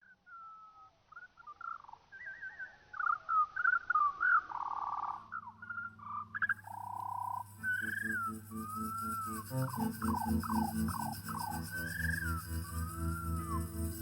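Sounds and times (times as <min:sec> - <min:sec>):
birdsong chirps and trills: 0:00.1 - 0:14.0
steady low hum: 0:05.2 - 0:14.0.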